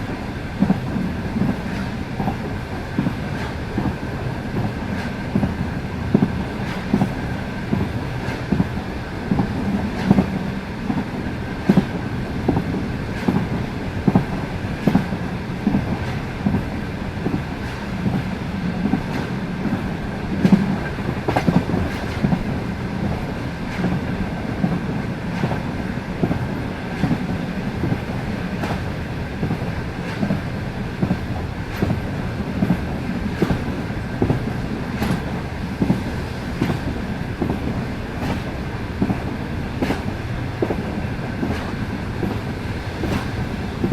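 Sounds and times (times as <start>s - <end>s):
train wheels clickety-clack: 0.0s - 43.9s.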